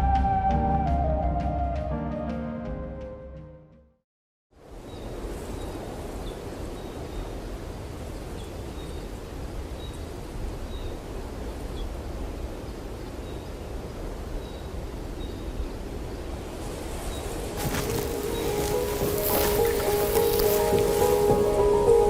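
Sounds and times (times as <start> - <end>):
wind rumbling on microphone: 4.6 - 22.0.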